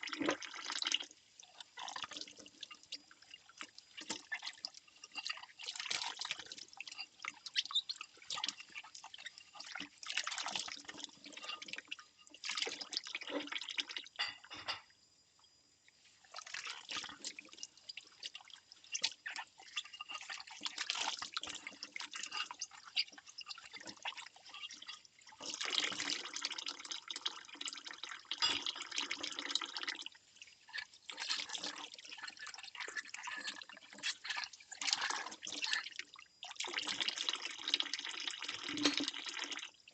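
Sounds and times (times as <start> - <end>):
water splashing and dripping: 0.0 - 14.2, 16.2 - 39.9
ceramic bowls clinking: 14.2 - 14.9.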